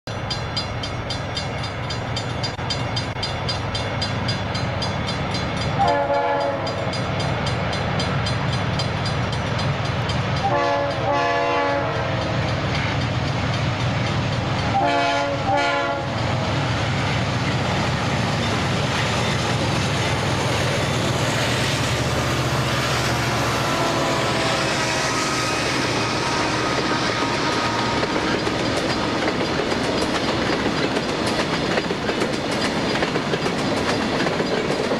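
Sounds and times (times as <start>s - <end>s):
diesel locomotive engines: 0.1s - 34.9s
train air horn blasts: 5.8s - 7.0s, 10.4s - 12.5s, 14.6s - 16.2s, 21.3s - 29.3s.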